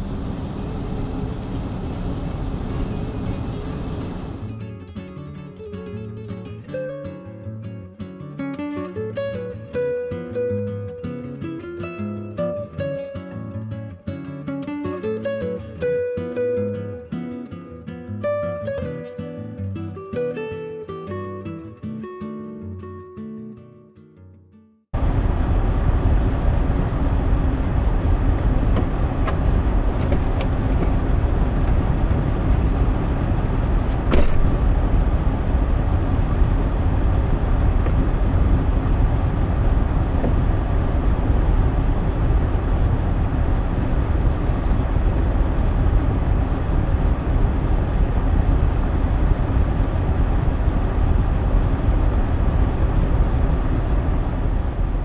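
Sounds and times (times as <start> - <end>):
pickup truck engine and road rumble: 0.0 - 4.6, 25.0 - 55.0
sharp knock: 33.9 - 34.6.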